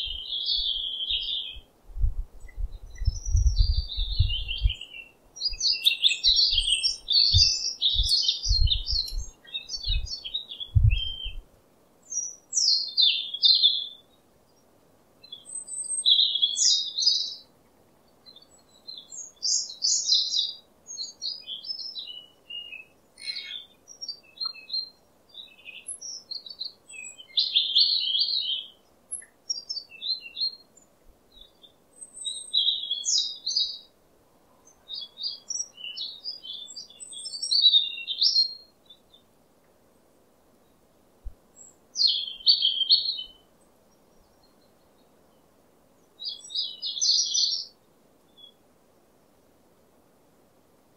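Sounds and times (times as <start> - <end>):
birds chirping and singing: 0.0 - 1.7, 2.4 - 11.4, 18.2 - 30.6, 31.4 - 33.9, 34.6 - 39.2, 41.6 - 43.4, 46.2 - 47.7.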